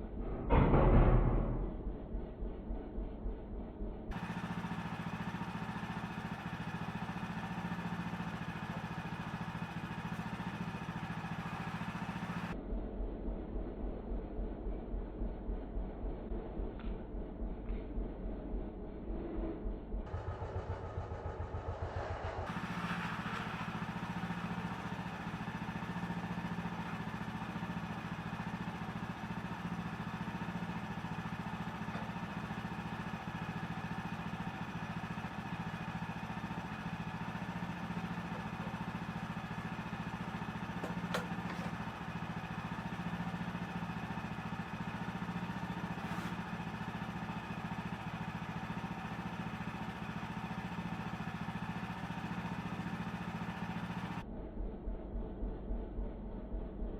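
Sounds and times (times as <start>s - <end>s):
bandsaw mill engine running: 3.9s - 12.6s, 18.8s - 54.2s.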